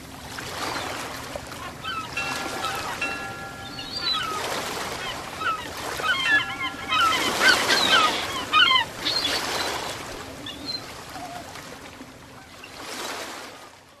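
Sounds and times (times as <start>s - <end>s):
ocean waves washing in: 0.0s - 12.2s
birds calling: 0.6s - 11.0s.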